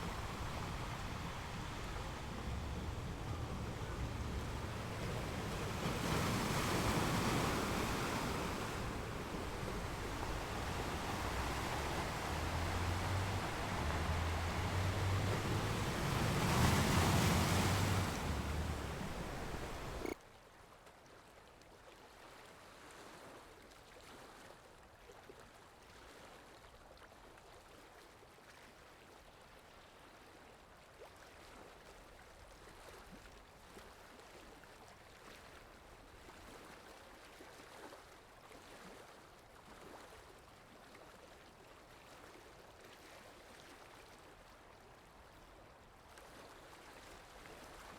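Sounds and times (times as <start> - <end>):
ocean surf rushing: 0.0 - 20.2
water washing with small splashes: 0.0 - 20.2, 32.6 - 47.9.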